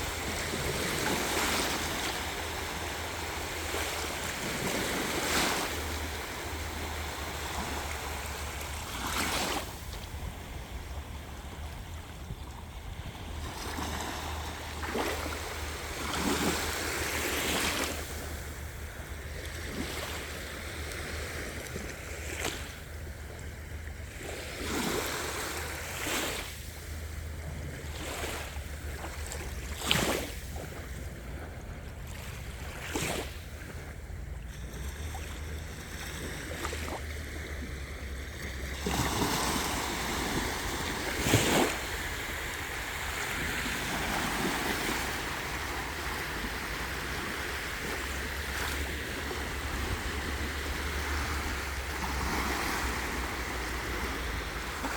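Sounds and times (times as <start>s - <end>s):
waves breaking on beach: 0.0s - 54.9s
wind rumble on microphone: 0.0s - 54.9s.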